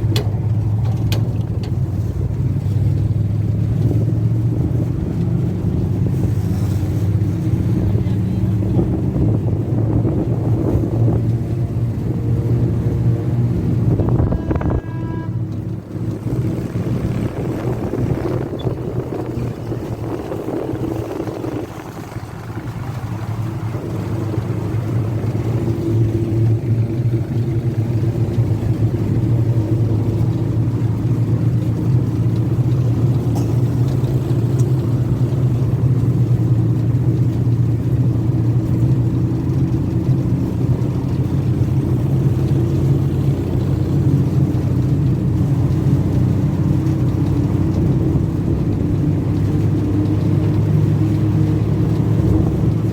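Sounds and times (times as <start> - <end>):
road train engine running: 0.0 - 52.9
brief high tone: 14.2 - 15.6.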